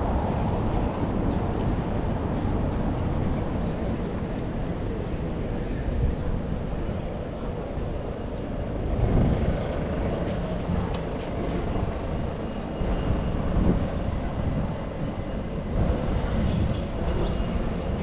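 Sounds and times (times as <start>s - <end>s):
traffic rumble: 0.0s - 12.7s.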